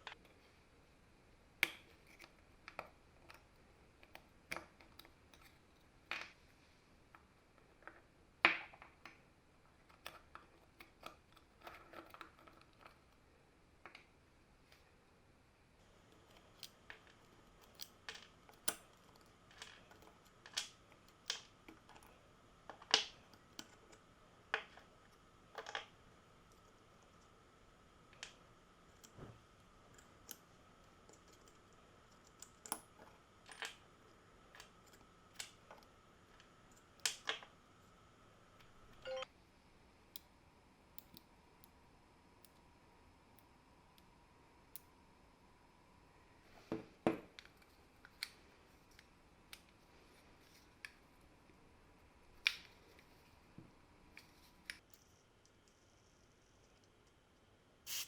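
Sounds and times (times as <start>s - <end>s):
small metal parts clicking: 16.2s - 22.0s
faint steady tone: 38.8s - 39.6s.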